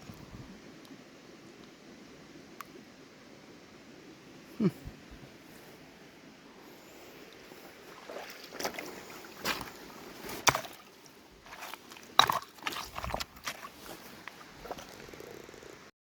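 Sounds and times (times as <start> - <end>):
person splashing in river: 7.8 - 14.9
knocks and scrapes on rocks: 9.4 - 10.8, 11.4 - 15.1.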